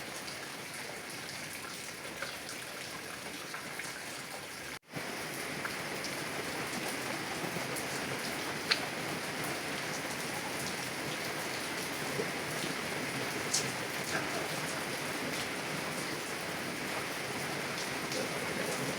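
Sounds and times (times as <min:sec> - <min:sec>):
heavy rain on a car: 0:05.0 - 0:18.9.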